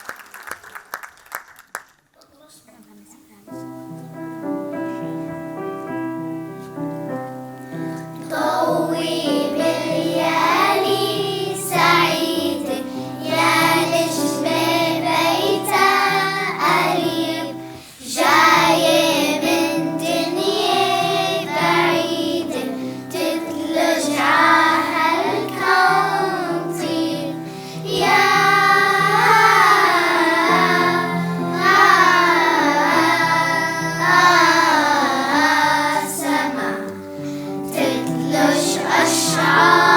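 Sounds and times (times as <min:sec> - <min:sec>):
instrumental accompaniment: 0:03.6 - 0:39.9
children's choir singing: 0:08.0 - 0:39.9.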